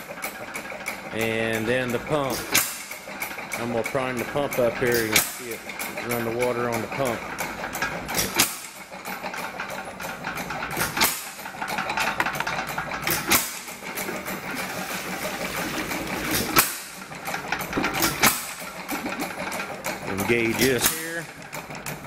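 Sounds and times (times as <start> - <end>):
engine mechanical clatter: 0.0 - 22.0.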